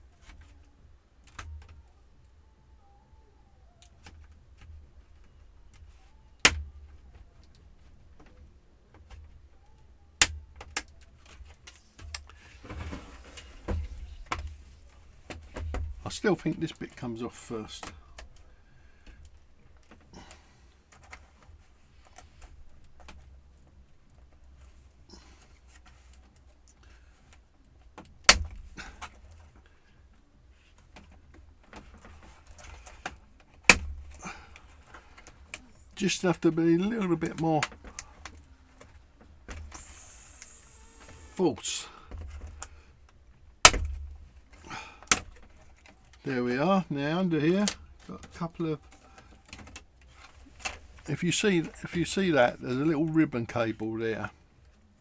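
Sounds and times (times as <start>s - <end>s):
plastic scraping and rubbing: 0.0s - 23.8s
faint plastic clicks: 0.0s - 55.0s
plastic scraping and handling: 3.6s - 54.9s
plastic clips snapping: 3.8s - 16.0s, 28.0s - 29.1s, 31.0s - 35.7s, 43.6s - 46.2s.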